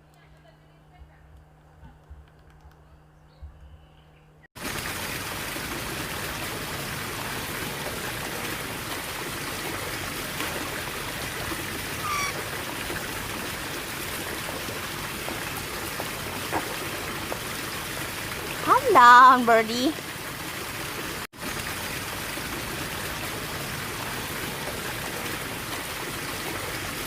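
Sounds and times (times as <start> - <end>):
running water rushing: 4.6 - 27.0
faint bird chirps: 12.0 - 12.4.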